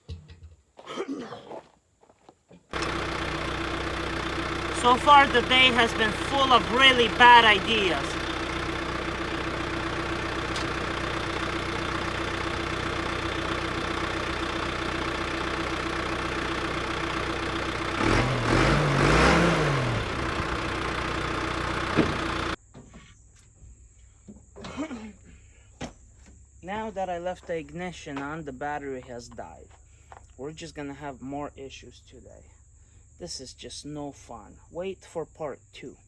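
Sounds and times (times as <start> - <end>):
engine running: 2.8 - 22.6.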